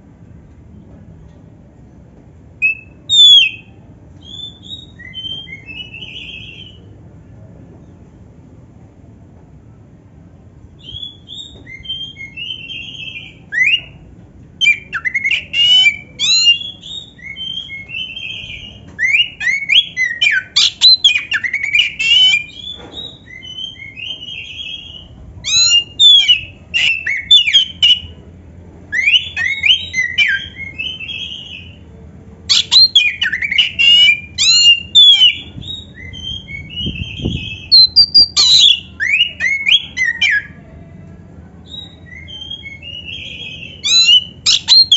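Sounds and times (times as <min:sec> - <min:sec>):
magpie-robin singing: 0:02.6 - 0:06.8, 0:10.8 - 0:14.0, 0:14.6 - 0:28.2, 0:28.9 - 0:31.8, 0:32.5 - 0:40.6, 0:41.6 - 0:44.9.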